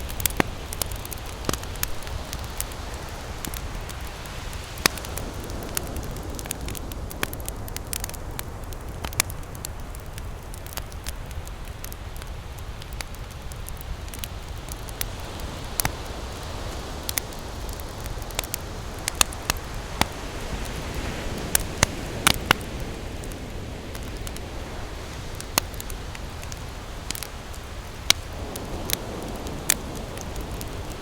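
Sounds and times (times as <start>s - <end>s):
ocean waves: 0.0s - 7.4s, 15.1s - 31.0s
campfire crackling and popping: 0.0s - 31.0s.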